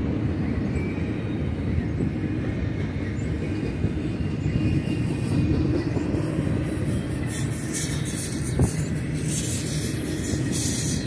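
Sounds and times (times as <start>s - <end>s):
train wheels rumbling on rails: 0.0s - 11.0s
high wheel squeaks: 3.1s - 11.0s.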